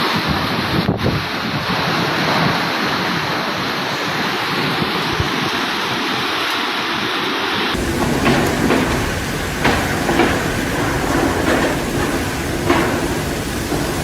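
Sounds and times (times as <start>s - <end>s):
wind and rain buffeting microphone: 0.0s - 14.0s.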